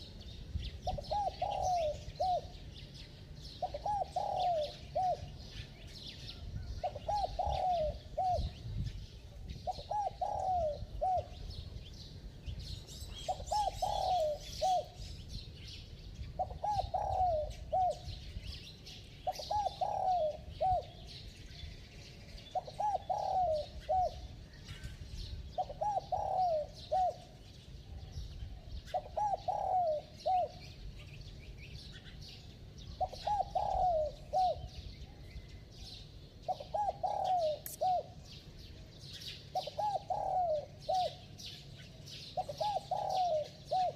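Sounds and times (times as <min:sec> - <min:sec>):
small birds chirping faintly: 0:00.0 - 0:43.9
dove cooing: 0:00.8 - 0:02.7, 0:03.4 - 0:05.7, 0:06.6 - 0:08.6, 0:09.5 - 0:11.6, 0:13.1 - 0:15.0, 0:16.4 - 0:18.3, 0:19.0 - 0:21.2, 0:22.4 - 0:27.4, 0:28.8 - 0:30.8, 0:32.9 - 0:35.3, 0:36.4 - 0:38.3, 0:39.1 - 0:43.9.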